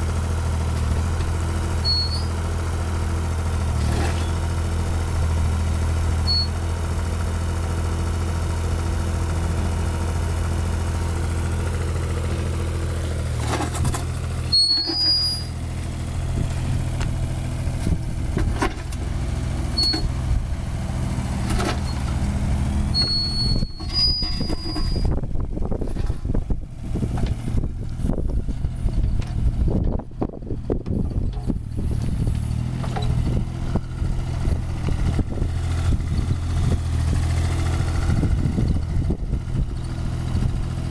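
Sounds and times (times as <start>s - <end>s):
diesel engine running: 0.0s - 40.9s
short high squeals: 1.8s - 2.4s, 6.3s - 6.6s, 14.4s - 15.6s, 19.7s - 20.1s, 22.9s - 25.2s
excavator knocks and clanks: 13.3s - 15.2s, 17.0s - 20.3s, 21.3s - 25.1s, 27.0s - 27.5s, 30.7s - 39.1s.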